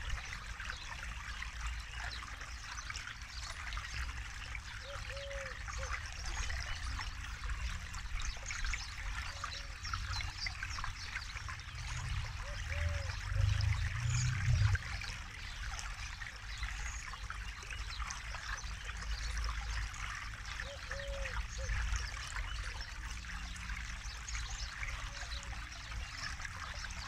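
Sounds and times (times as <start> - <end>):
river water babbling over stones: 0.0 - 27.0
low rumble: 11.7 - 15.2.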